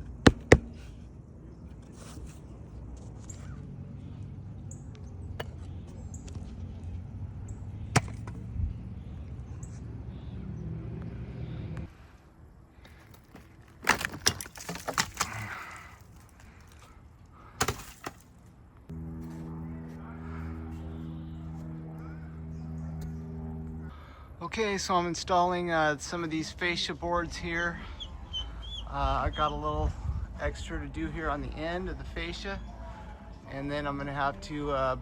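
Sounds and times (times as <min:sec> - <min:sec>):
low motor hum: 0:00.0 - 0:11.9, 0:18.5 - 0:24.4.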